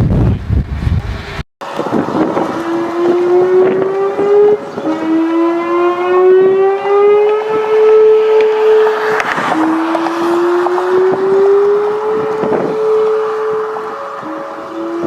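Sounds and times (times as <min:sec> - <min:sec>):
wind noise: 0:00.0 - 0:05.3, 0:06.2 - 0:15.0
warning siren wailing: 0:01.6 - 0:15.0.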